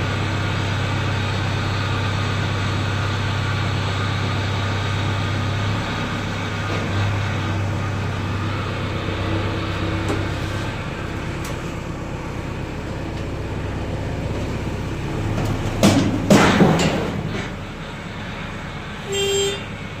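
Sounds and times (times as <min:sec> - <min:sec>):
engine running: 0:00.0 - 0:20.0
loud metal clanks: 0:15.3 - 0:17.8.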